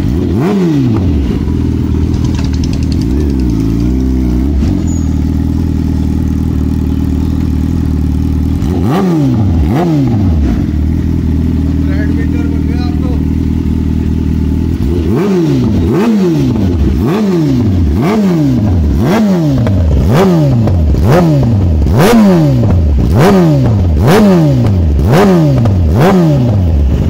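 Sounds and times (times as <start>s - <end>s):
motorcycle engine revving: 0.0s - 27.0s
exhaust crackles: 0.1s - 10.7s.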